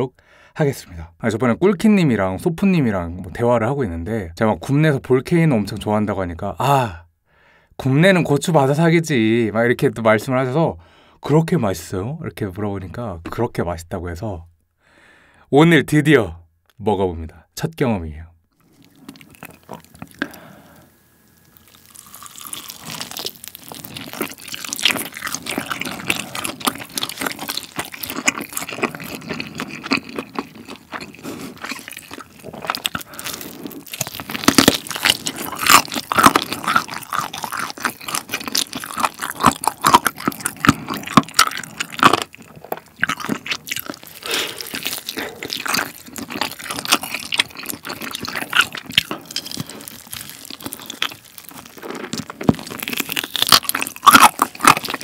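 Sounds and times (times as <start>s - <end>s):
crunchy chewing: 18.6s - 55.0s.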